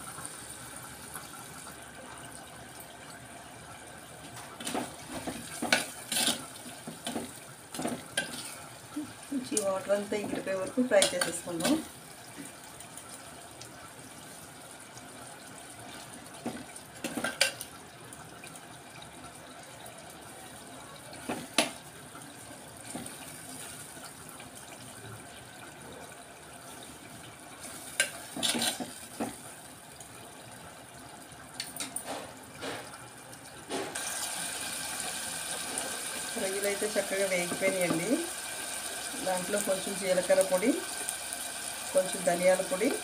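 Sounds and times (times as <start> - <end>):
prawns sizzling in a pot: 4.4 - 17.7, 21.0 - 25.3, 26.6 - 29.9, 33.8 - 43.0.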